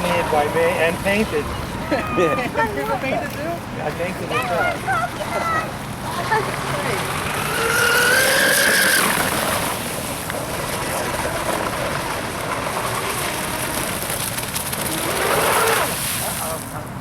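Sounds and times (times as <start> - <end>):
rc boat motor whining: 4.4 - 15.9.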